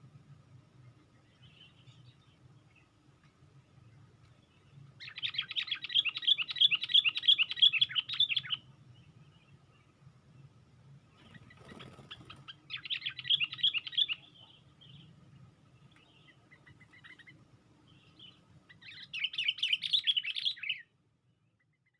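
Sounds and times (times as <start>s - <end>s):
faint low hum: 0.0s - 21.9s
bulbul chattering calls: 4.5s - 9.9s, 11.1s - 15.2s, 15.8s - 20.9s.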